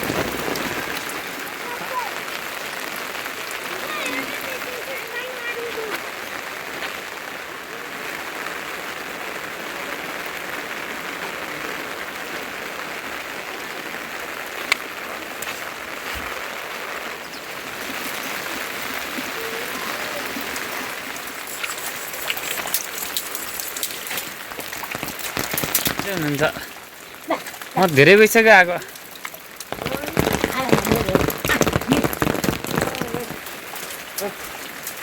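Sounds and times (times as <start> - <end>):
steady rain hissing: 0.0 - 35.0
drip-like ticks: 21.2 - 30.1.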